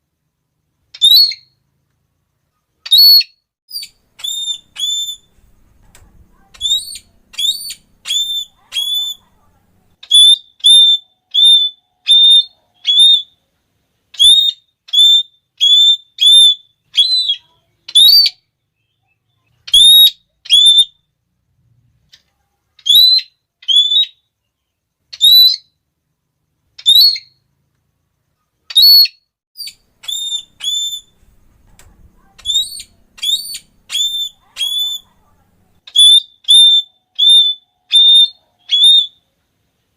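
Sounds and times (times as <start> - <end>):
parrot shrill calls: 1.0 - 1.5, 2.8 - 5.6, 6.3 - 9.3, 10.0 - 13.4, 14.2 - 18.5, 19.7 - 21.0, 22.8 - 24.3, 25.1 - 25.7, 26.8 - 27.4, 28.7 - 35.1, 35.9 - 39.2.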